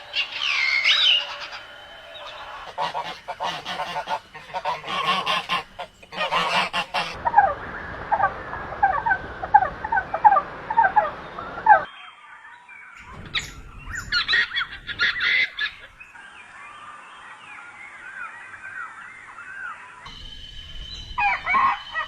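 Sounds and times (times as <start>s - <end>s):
harsh honk-like bird calls: 0.0s - 7.2s.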